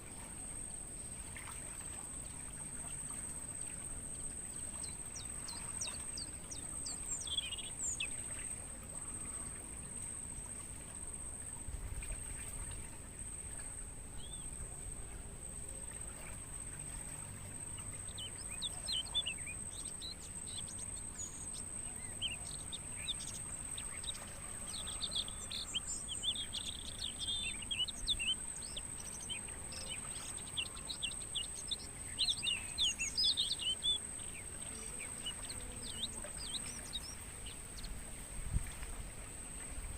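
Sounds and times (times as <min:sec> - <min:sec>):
crickets trilling: 0:00.0 - 0:39.9
birds chirping: 0:04.6 - 0:08.5, 0:17.6 - 0:38.1.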